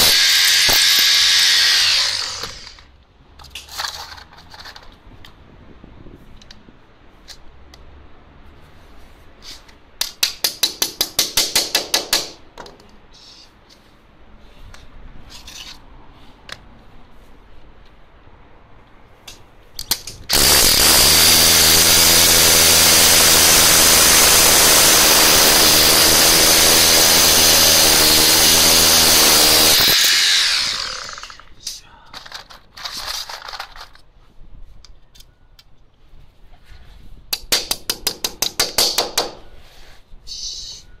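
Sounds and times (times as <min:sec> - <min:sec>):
power tool running: 0:00.0 - 0:02.9, 0:20.3 - 0:31.5
scraping and rubbing strokes: 0:08.5 - 0:09.8.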